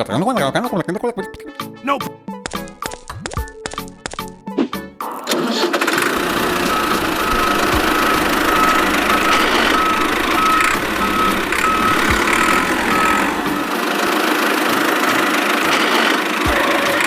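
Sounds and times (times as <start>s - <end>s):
noisy motor din: 5.7s - 17.0s
electronic reversing alarm beeps: 6.1s - 13.8s.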